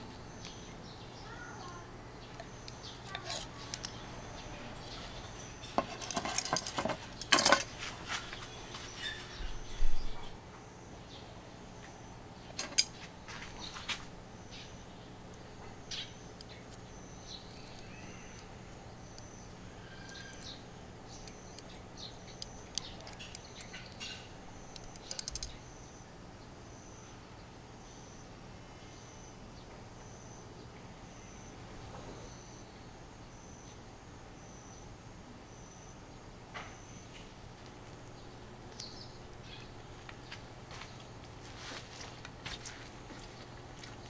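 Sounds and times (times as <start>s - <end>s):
metal utensils clinking on dish: 3.0s - 3.9s, 4.9s - 8.1s, 12.6s - 12.9s
light clicks and clatters: 5.0s - 9.4s, 24.8s - 25.6s.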